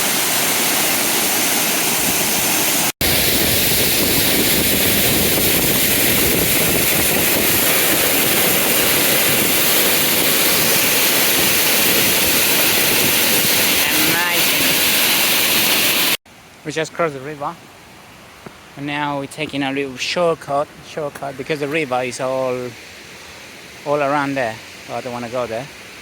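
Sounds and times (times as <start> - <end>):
water rushing over rocks: 0.0 - 17.2.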